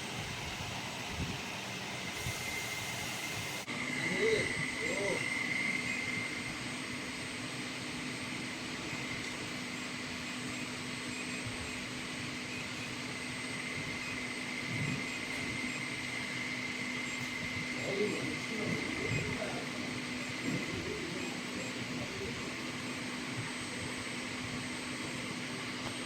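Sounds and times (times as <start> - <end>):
high fan-like whine: 0.0 - 26.0
machine whirring hum: 0.0 - 26.0.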